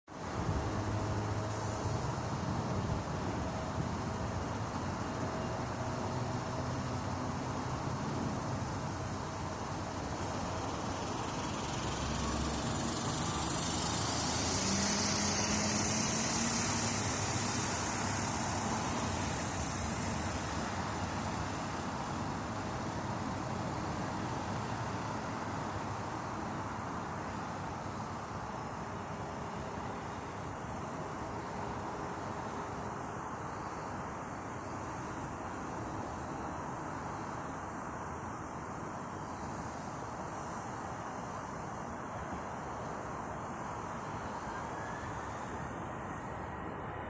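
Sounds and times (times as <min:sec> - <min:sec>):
low engine rumble: 0:00.1 - 0:25.1
hiss: 0:00.2 - 0:24.0.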